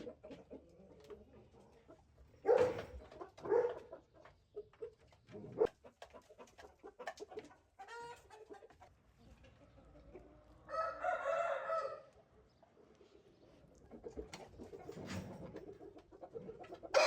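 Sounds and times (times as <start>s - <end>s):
rooster crowing: 10.7s - 12.1s.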